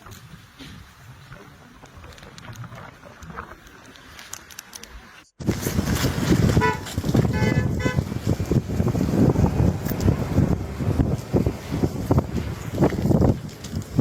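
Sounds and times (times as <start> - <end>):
vehicle horn tooting: 6.5 - 8.1.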